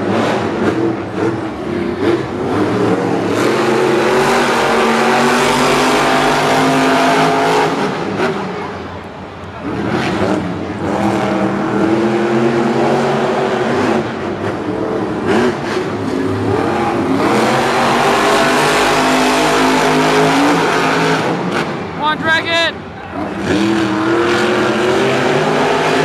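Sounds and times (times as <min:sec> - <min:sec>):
monster truck engines revving: 0:00.0 - 0:26.0.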